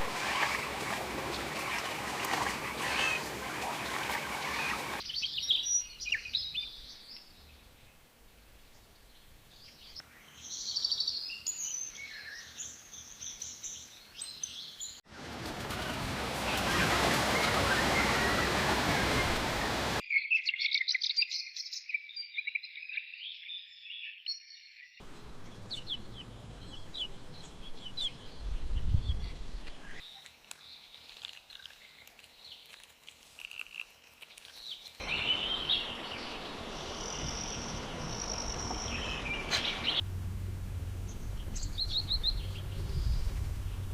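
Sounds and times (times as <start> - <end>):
birds chirping and singing: 20.1 - 30.1, 41.1 - 43.8.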